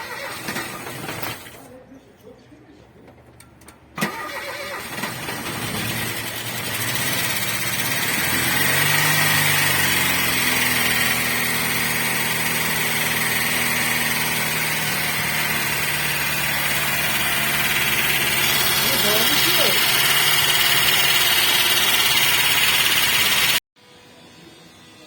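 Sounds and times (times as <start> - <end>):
car engine idling: 4.4 - 23.6
engine knocking: 5.4 - 23.6.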